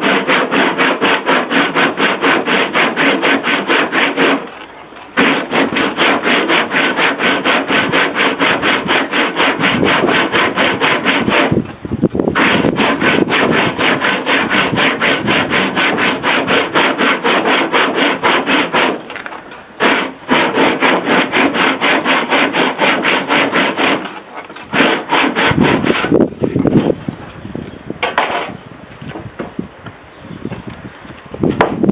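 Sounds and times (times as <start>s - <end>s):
hand tool rubbing on wood: 0.0s - 11.6s, 12.4s - 19.1s, 19.8s - 26.9s.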